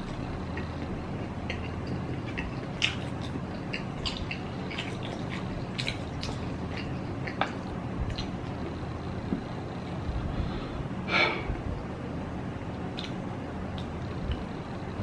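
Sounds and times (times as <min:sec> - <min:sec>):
person chewing noodles: 0:00.0 - 0:10.2
steady low hum: 0:00.0 - 0:15.0.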